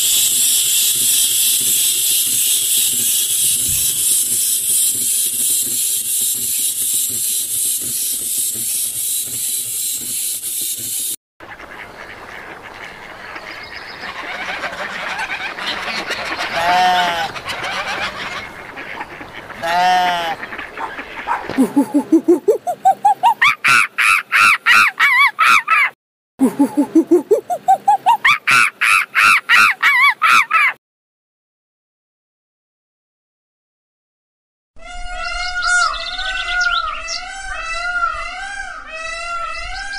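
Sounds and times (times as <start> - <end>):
loud high hiss: 0.0 - 11.2
waterfowl background: 0.6 - 25.9, 27.5 - 30.8, 34.9 - 39.9
goose honking: 11.5 - 21.5.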